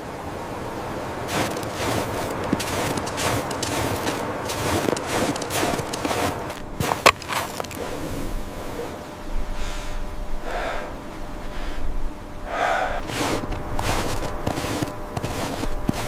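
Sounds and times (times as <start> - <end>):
steady hiss: 0.0 - 16.0
person breathing: 9.5 - 14.9.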